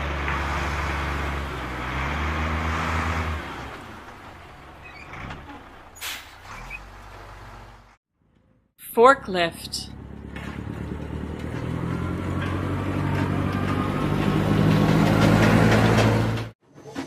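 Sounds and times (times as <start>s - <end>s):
diesel truck engine rumble: 0.0s - 8.4s, 9.0s - 16.6s.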